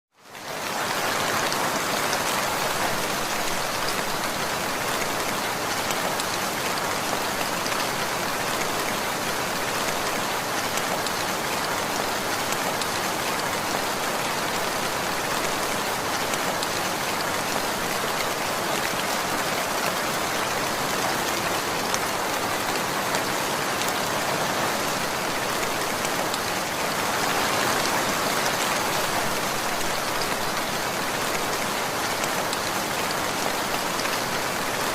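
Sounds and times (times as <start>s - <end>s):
steady rain falling: 0.1s - 34.9s.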